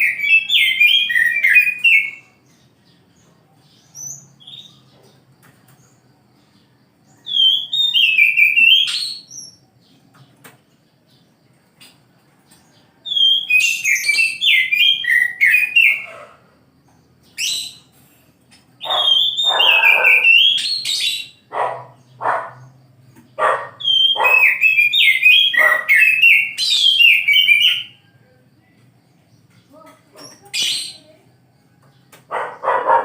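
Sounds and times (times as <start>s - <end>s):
bird singing whistled notes: 0.0s - 2.4s, 7.1s - 9.6s, 13.0s - 16.2s, 18.8s - 22.8s, 23.4s - 28.4s.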